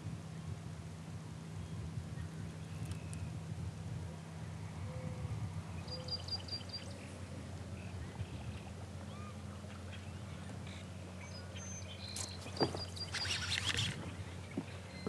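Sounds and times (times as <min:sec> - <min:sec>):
steady low hum: 0:00.0 - 0:15.0
birds chirping: 0:04.8 - 0:15.0.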